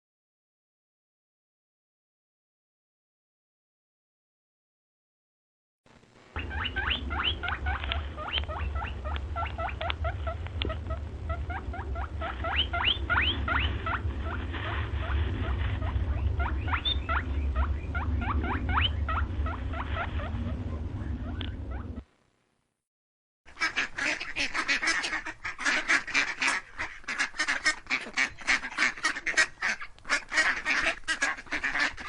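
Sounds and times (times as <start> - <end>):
low rumble: 5.9 - 22.1
small animal squeaking: 6.4 - 22.0.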